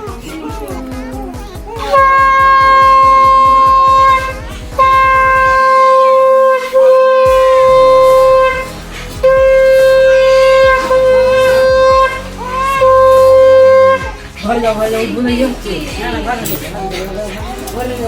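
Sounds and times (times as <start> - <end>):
conch shell blasts: 1.9 - 14.2.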